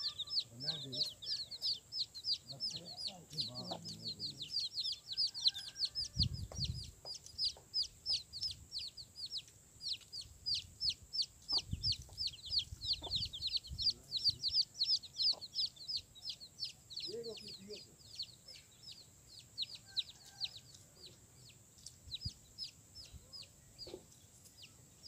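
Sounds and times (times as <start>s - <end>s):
birds peeping: 0.0s - 25.0s
dull low thump: 6.2s - 7.6s.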